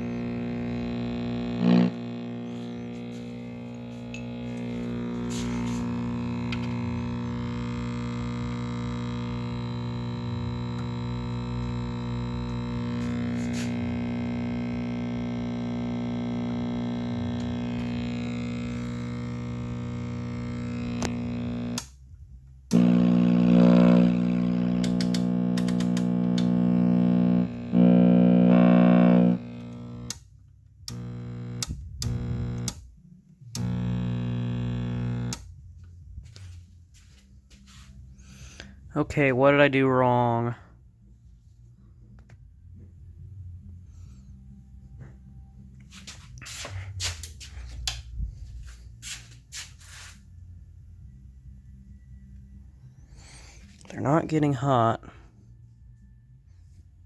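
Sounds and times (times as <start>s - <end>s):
tv speaker mains hum: 0.0s - 30.2s, 30.9s - 35.5s.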